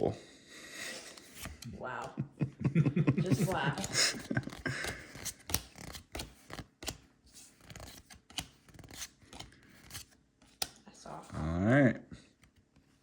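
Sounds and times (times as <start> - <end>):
trading cards clicking and rustling: 0.9 - 2.1, 3.2 - 10.8.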